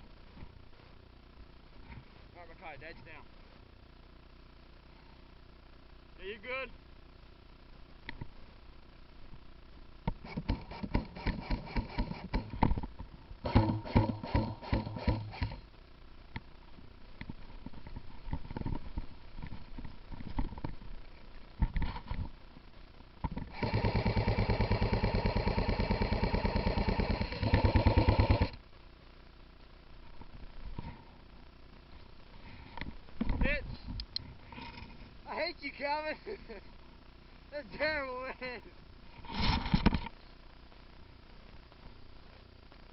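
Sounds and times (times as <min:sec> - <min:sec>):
gearbox motor buzzing: 0:10.2 - 0:12.8, 0:13.4 - 0:15.6, 0:23.3 - 0:28.6.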